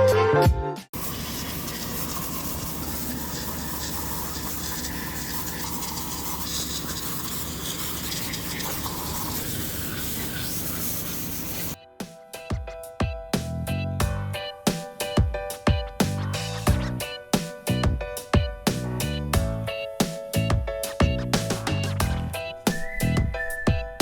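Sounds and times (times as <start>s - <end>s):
workshop machine hissing and humming: 1.0s - 11.8s.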